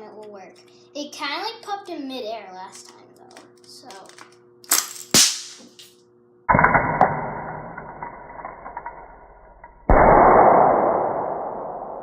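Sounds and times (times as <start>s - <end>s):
sharp cracks of popper cap: 4.7s - 6.0s.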